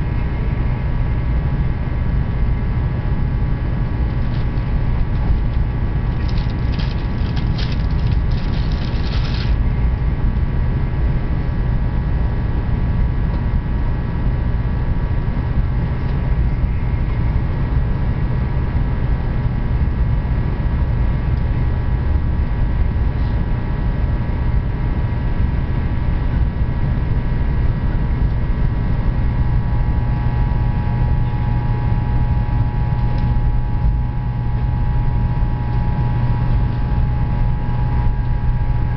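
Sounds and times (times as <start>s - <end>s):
faint whining tones: 0.0s - 10.8s, 27.9s - 38.9s
train rumbling: 2.3s - 11.4s.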